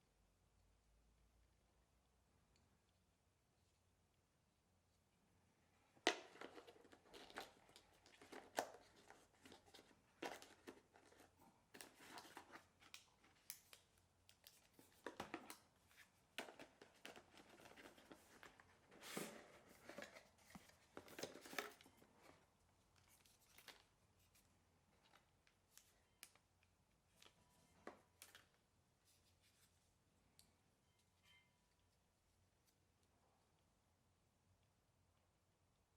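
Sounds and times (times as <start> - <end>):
packaging rustling and scraping: 6.1 - 13.4, 14.5 - 24.5.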